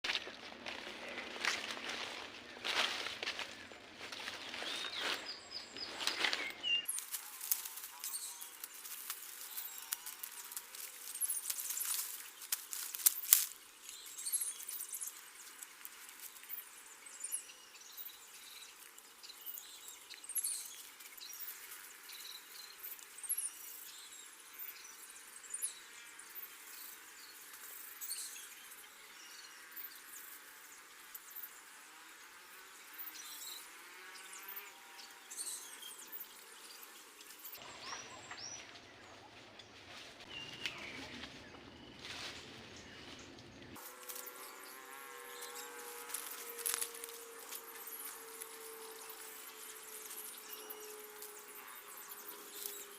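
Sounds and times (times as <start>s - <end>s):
small birds chirping: 0.8s - 52.9s
insect hiss: 6.8s - 34.7s, 43.8s - 52.9s.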